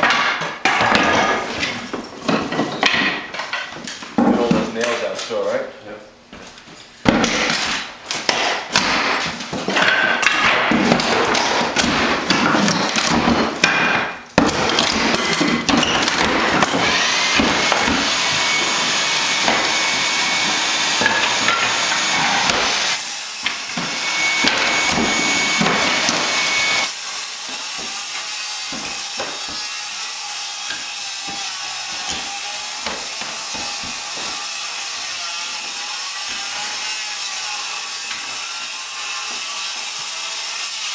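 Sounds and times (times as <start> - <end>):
sawing through boards: 7.2 - 40.9
hammer blows on wood: 10.3 - 29.7.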